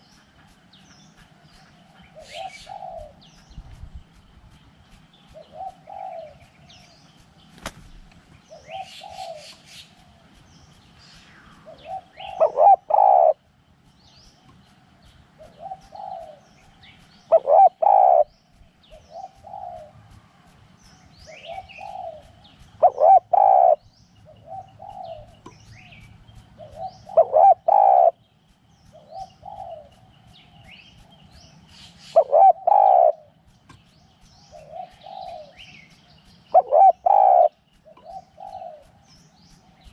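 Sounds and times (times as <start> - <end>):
small birds chirping faintly: 0.0 - 39.9
dove cooing: 1.9 - 3.4, 5.3 - 6.8, 8.5 - 10.4, 11.6 - 13.4, 15.4 - 16.4, 17.3 - 18.3, 18.9 - 20.0, 21.3 - 26.0, 26.6 - 28.2, 28.9 - 30.0, 32.0 - 33.5, 34.5 - 35.9, 36.5 - 39.1.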